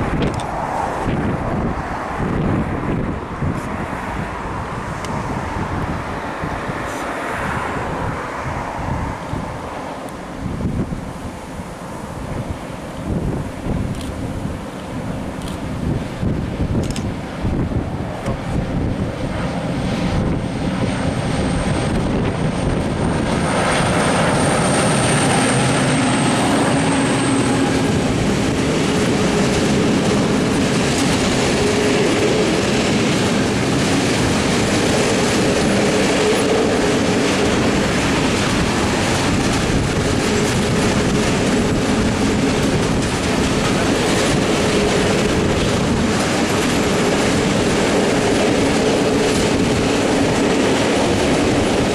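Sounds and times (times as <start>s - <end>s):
wheels clacking over rail joints: 22.7s - 51.9s
high wheel squeal: 23.4s - 28.2s.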